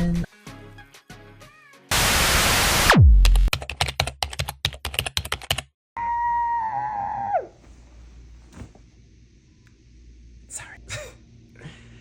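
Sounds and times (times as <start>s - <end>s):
loud hiss burst: 1.9s - 3.0s.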